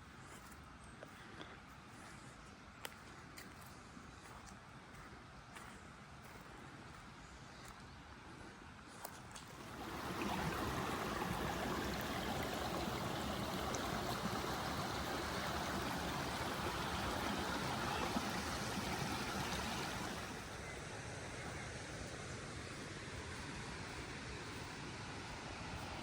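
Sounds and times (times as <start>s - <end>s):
stream rushing over stones: 9.4s - 20.8s.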